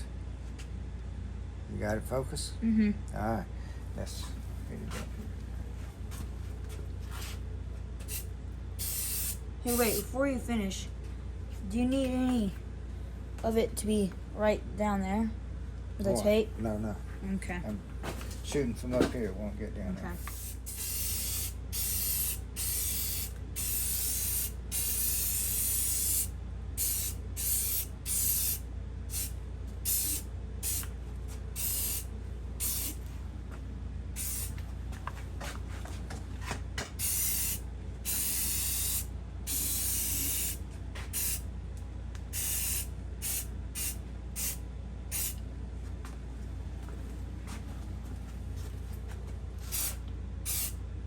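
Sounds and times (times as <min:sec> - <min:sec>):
spray paint hissing: 0:08.0 - 0:10.1, 0:20.2 - 0:30.9, 0:31.5 - 0:33.0, 0:34.2 - 0:34.6, 0:37.0 - 0:41.4, 0:42.3 - 0:45.4, 0:49.6 - 0:50.8.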